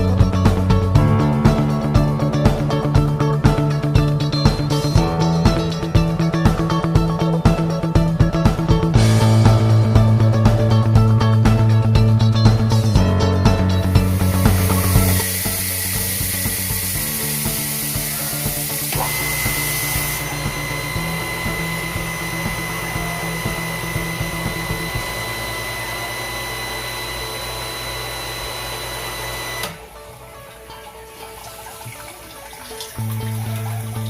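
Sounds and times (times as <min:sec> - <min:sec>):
background music with held notes: 0:00.0 - 0:34.0
motor whine and hiss: 0:14.0 - 0:30.0.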